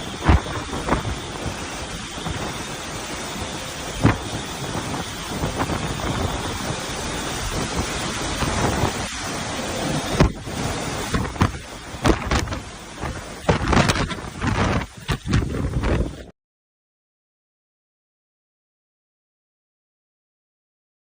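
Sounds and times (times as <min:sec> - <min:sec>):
heavy rain: 0:00.0 - 0:16.3
wind gusts: 0:00.0 - 0:16.3.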